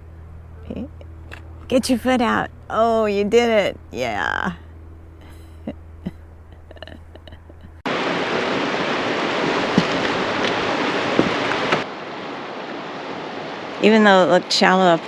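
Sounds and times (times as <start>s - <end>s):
low hum: 0.0s - 12.6s
river water rushing over rocks: 7.9s - 14.0s.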